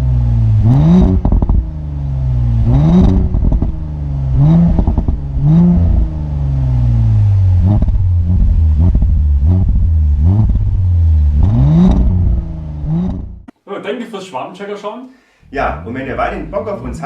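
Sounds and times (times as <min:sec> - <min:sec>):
car engine revving: 0:00.0 - 0:13.5.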